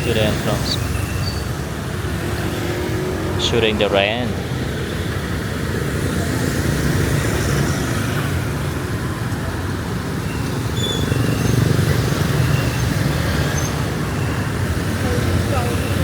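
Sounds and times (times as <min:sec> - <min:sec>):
motorbike engines passing: 0:00.0 - 0:16.0
traffic on wet road: 0:00.0 - 0:16.0.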